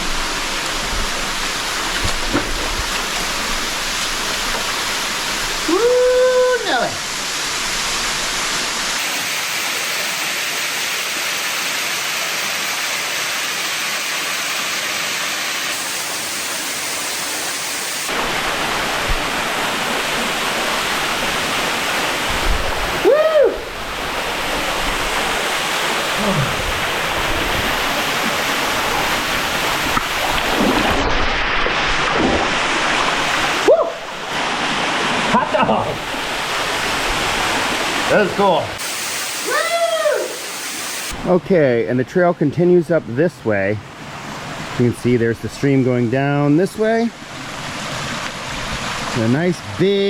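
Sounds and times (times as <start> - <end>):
waterfall rushing: 2.8 - 41.2
rising and falling call: 38.8 - 41.2.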